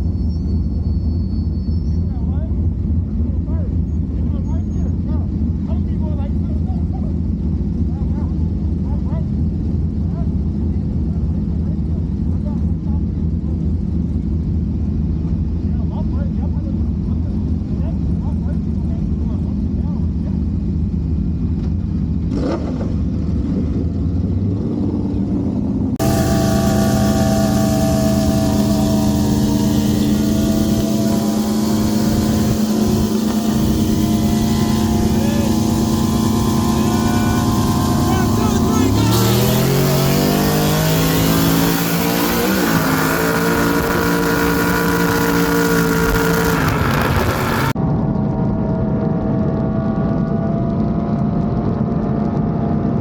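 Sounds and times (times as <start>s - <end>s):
engine idling rumble: 0.0s - 22.3s, 25.3s - 40.0s
steady engine drone: 0.0s - 53.0s.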